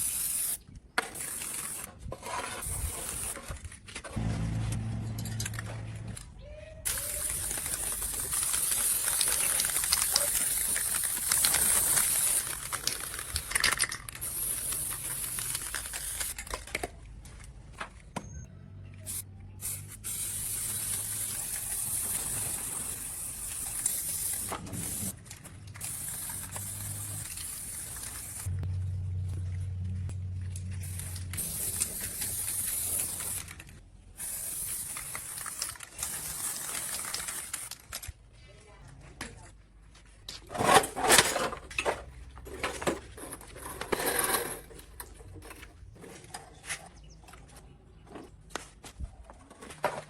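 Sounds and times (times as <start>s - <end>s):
welding arc hissing and crackling: 0.0s - 0.5s, 6.9s - 13.5s.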